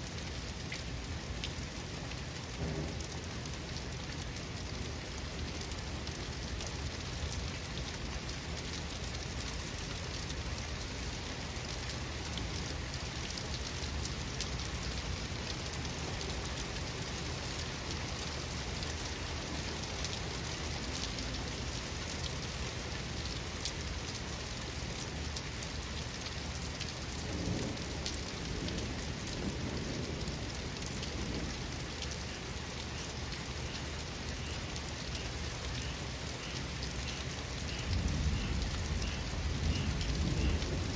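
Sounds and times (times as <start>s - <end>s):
rain pattering: 0.0s - 40.9s
distant thunder rumble: 2.6s - 3.2s, 37.9s - 40.9s.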